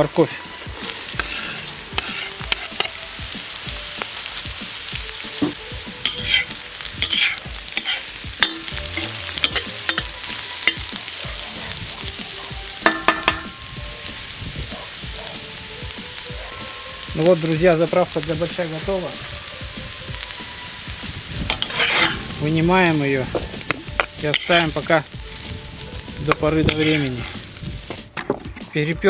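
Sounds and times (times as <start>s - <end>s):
vegetables sizzling in butter: 0.0s - 28.2s
utensil scraping and knocking pot: 0.7s - 3.0s, 5.4s - 13.6s, 21.0s - 25.4s, 26.2s - 28.7s.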